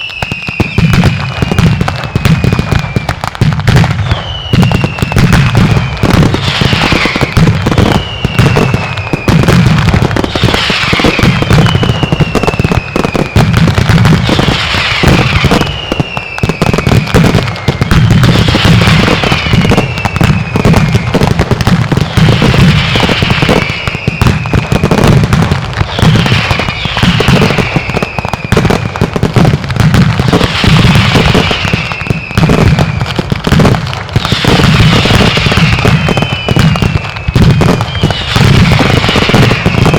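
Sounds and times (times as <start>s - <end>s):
rapid firecracker bangs: 0.0s - 39.9s
whistles falling in pitch: 4.0s - 5.2s, 6.8s - 9.4s, 10.6s - 13.0s, 34.9s - 39.9s.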